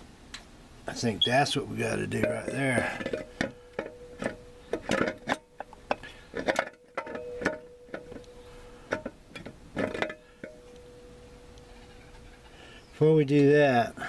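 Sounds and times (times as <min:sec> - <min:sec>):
faint steady hum: 0:00.0 - 0:14.0
metal parts clinking and knocking: 0:02.2 - 0:08.3, 0:08.9 - 0:10.8.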